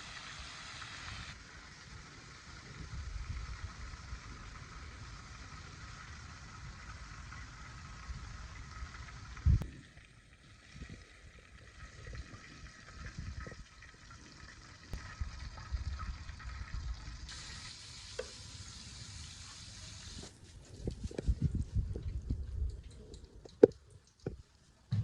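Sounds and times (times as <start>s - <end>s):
chicken wings frying in hot oil: 0.0s - 9.7s, 10.5s - 20.3s.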